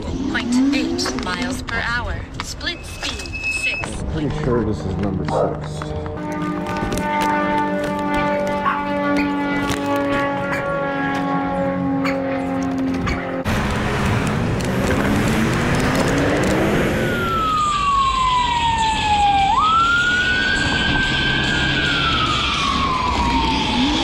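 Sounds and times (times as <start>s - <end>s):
rushing background noise: 0.0s - 24.0s
emergency siren wailing: 3.6s - 24.0s.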